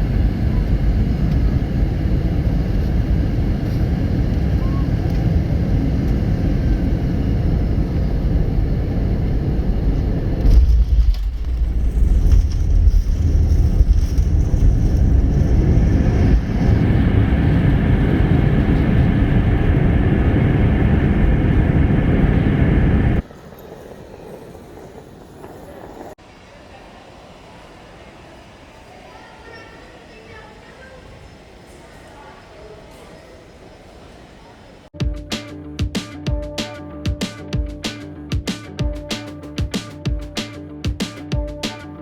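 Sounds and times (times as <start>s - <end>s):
wheels hitting runway rumble: 0.0s - 30.7s
airliner engine and air rush: 0.0s - 35.0s.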